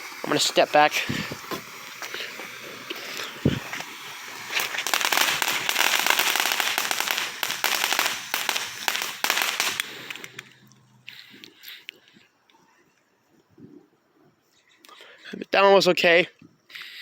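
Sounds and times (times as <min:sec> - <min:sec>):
firework bangs: 0:00.0 - 0:10.4
firework crackling: 0:00.0 - 0:10.6
firework fizzing hiss: 0:00.0 - 0:10.6
firework thump: 0:03.4 - 0:03.9.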